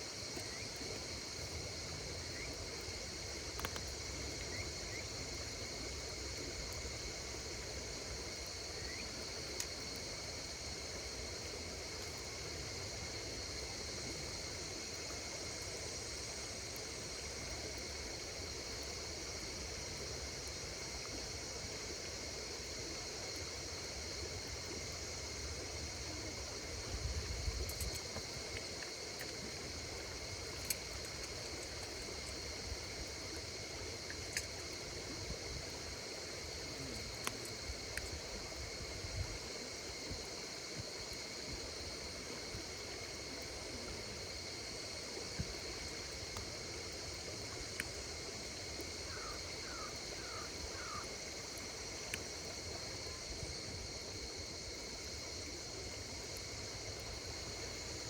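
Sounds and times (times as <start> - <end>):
insects singing: 8.7 - 9.2, 47.1 - 54.5.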